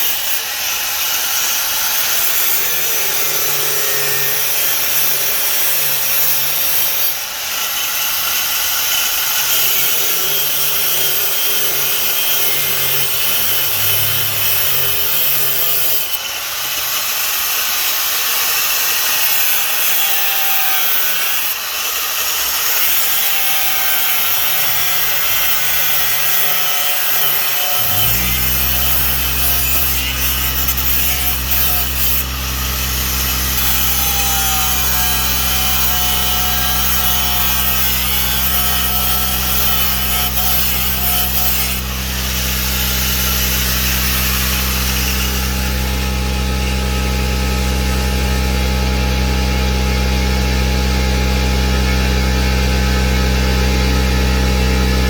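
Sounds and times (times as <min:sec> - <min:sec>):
angle grinder cutting sheet metal: 0:00.0 - 0:50.4
low hum: 0:12.6 - 0:15.7, 0:28.2 - 0:37.3, 0:41.9 - 0:55.0.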